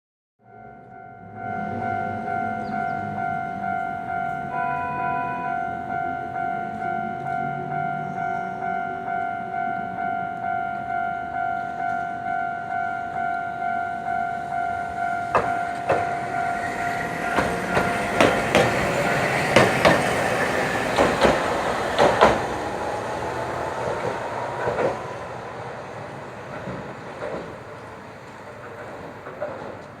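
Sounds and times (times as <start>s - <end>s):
level crossing warning bell: 0.4s - 26.2s
tram wheels clacking over rail joints: 14.8s - 30.0s.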